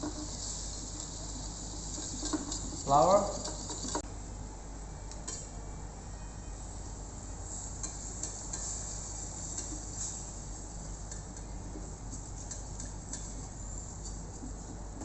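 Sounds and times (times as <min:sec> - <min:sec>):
utensil scraping pan: 0:00.0 - 0:04.0
steady low hiss: 0:00.0 - 0:04.9, 0:06.6 - 0:15.0.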